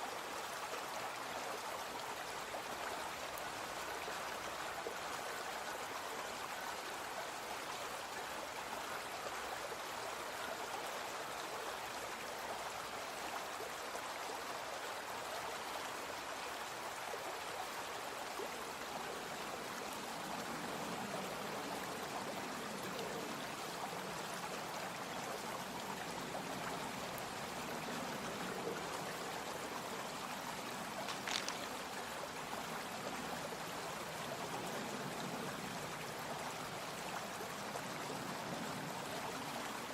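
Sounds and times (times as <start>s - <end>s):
brook flowing: 0.0s - 39.9s.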